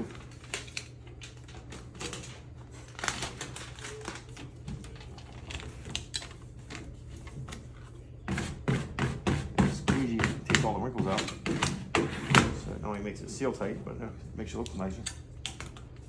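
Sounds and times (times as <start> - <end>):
steady low hum: 0.0 - 16.0
squeegee scraping and tapping: 8.3 - 12.5.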